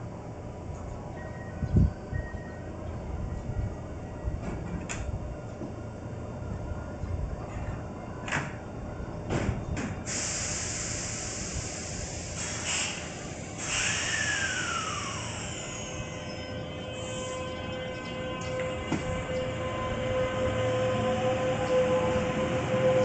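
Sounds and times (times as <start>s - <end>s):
air hiss bursts: 10.1s - 15.9s.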